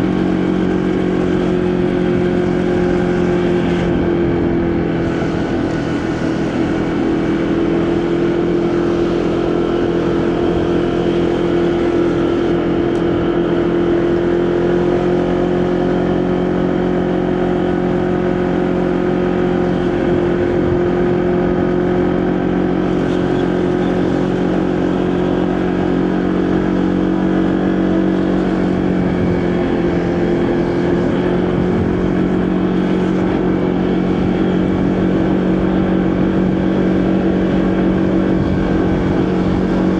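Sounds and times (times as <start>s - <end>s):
motorcycle engine cruising: 0.0s - 39.9s
wind noise: 28.4s - 39.9s.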